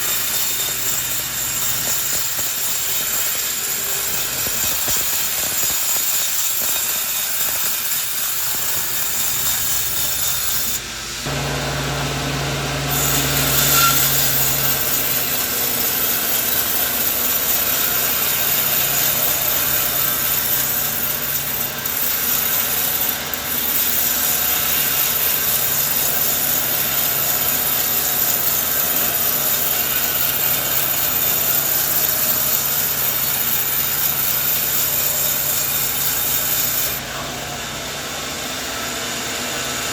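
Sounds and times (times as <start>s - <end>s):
saw cutting through wood: 0.0s - 39.9s
low machine hum: 11.1s - 21.8s.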